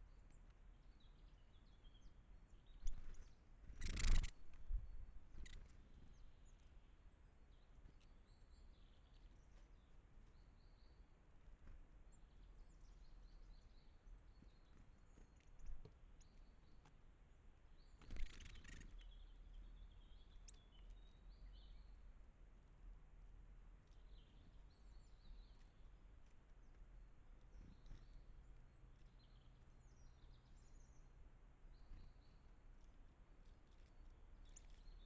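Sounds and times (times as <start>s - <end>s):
small birds chirping: 0.0s - 22.3s, 23.8s - 35.0s
low outdoor background: 0.0s - 35.0s
noisy rustle: 2.8s - 5.8s.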